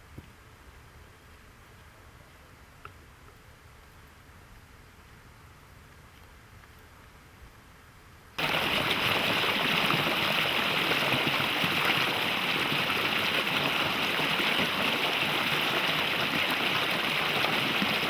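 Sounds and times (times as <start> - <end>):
stream rushing: 8.4 - 18.0.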